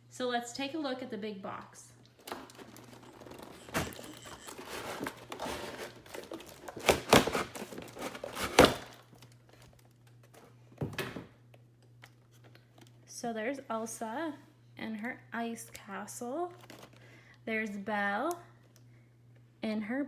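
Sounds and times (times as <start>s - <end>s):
cardboard packaging rustling: 2.2s - 10.4s, 16.5s - 17.1s
cardboard box thunks: 3.6s - 8.9s.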